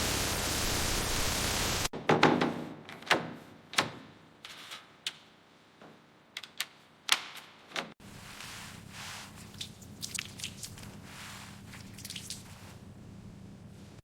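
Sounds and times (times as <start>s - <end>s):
steady hiss: 0.0s - 1.9s.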